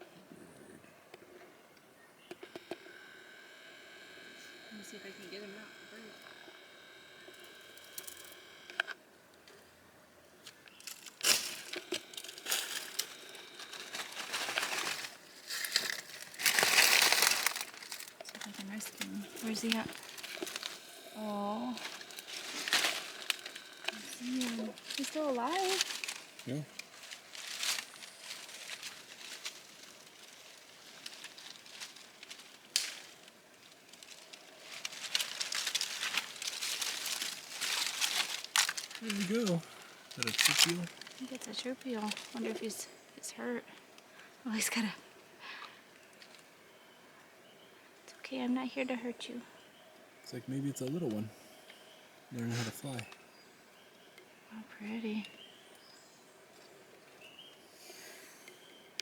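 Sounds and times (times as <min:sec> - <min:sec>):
material rustling and crinkling: 0:21.8 - 0:42.7.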